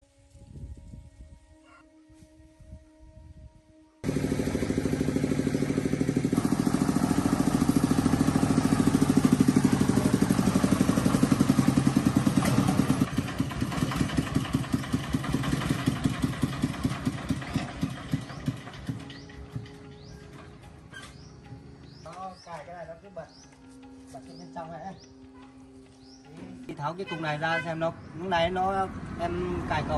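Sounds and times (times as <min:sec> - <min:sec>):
truck engine idling: 0:04.0 - 0:22.0.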